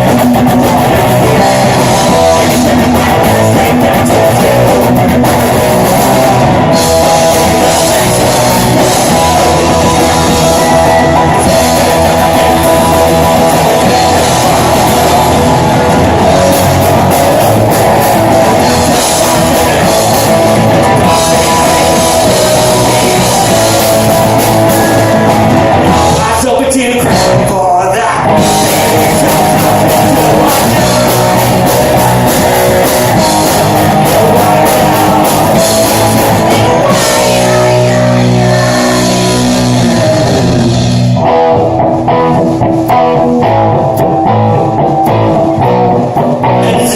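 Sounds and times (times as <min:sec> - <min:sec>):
person singing: 0:00.0 - 0:40.8, 0:42.3 - 0:46.9
guitar: 0:00.0 - 0:46.9
live rock band: 0:00.0 - 0:46.9.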